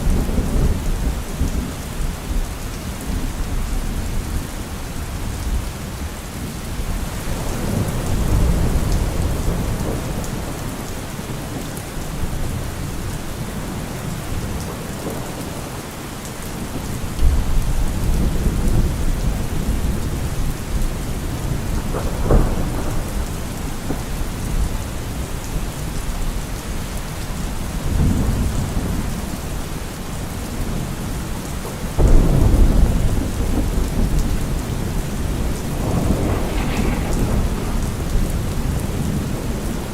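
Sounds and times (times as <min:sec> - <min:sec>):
steady rain falling: 0:00.0 - 0:39.9
thunder rumbling: 0:06.7 - 0:15.9, 0:16.5 - 0:26.5, 0:32.0 - 0:39.9
thunder crack: 0:21.0 - 0:24.8, 0:32.0 - 0:39.9.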